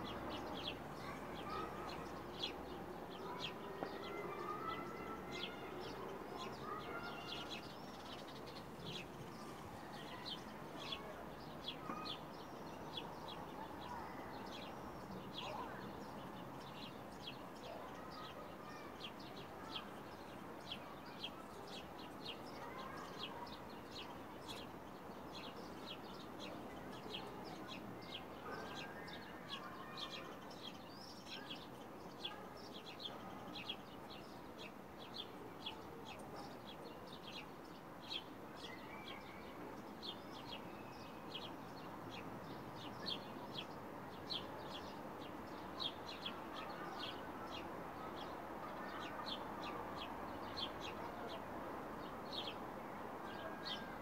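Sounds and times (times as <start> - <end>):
small birds chirping: 0.0 - 51.4
low background noise: 0.0 - 54.0.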